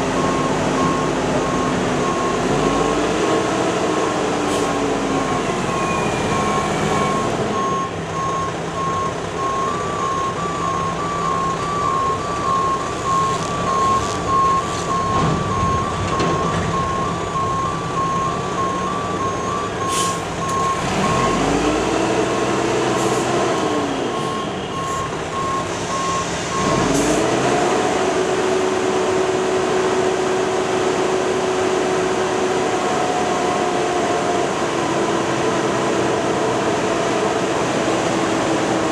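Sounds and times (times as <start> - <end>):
diesel truck engine: 0.0 - 38.9
backup alarm beeping: 5.2 - 21.7, 24.1 - 26.9.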